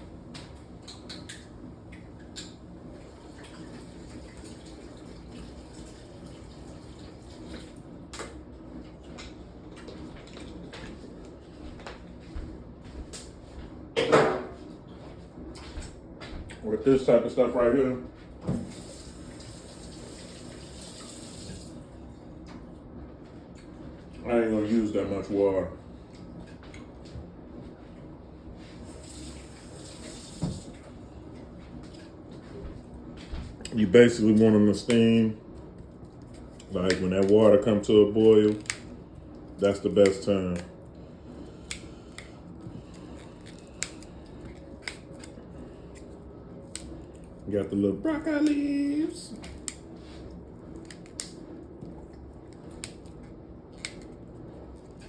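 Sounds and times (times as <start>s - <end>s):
water running from tap into sink: 18.6s - 21.7s, 29.0s - 30.8s.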